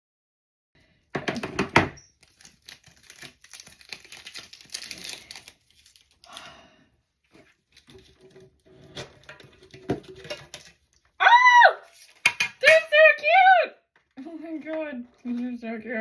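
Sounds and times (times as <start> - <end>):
wrapping crinkling: 2.1 - 6.6, 7.3 - 11.1.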